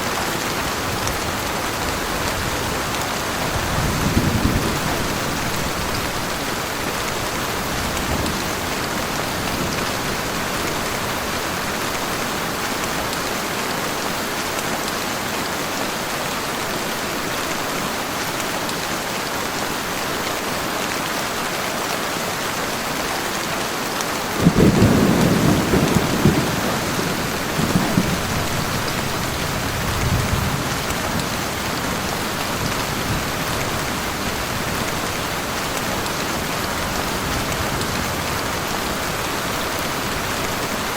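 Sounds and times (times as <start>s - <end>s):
heavy rain falling: 0.0s - 40.9s
thunder rumbling: 3.5s - 6.2s, 24.4s - 31.6s.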